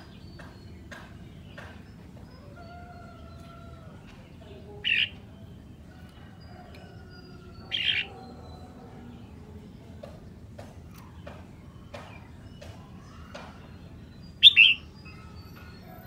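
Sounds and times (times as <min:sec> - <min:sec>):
bulbul singing loud phrases: 0:00.0 - 0:10.2, 0:11.0 - 0:16.0
faint whistled bird notes: 0:14.1 - 0:16.0.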